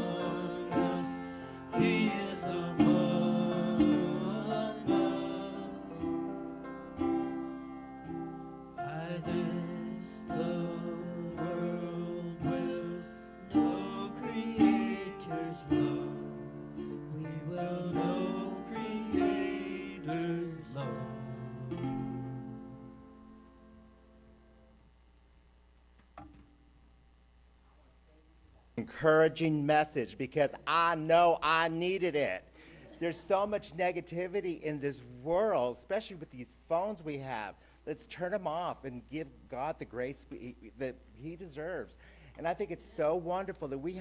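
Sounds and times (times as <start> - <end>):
plucked acoustic guitar music: 0.0 - 10.5, 12.4 - 23.4.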